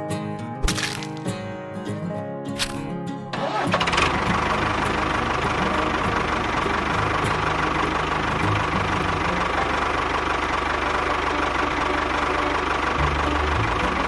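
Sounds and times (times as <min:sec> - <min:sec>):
engine knocking steadily: 0:03.9 - 0:14.0.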